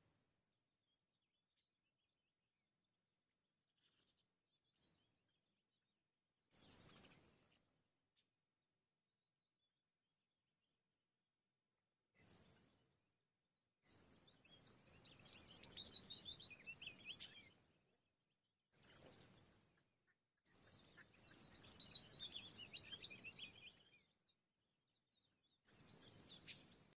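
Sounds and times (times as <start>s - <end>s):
birds chirping and twittering: 3.8s - 5.2s, 6.5s - 8.3s, 12.2s - 27.0s.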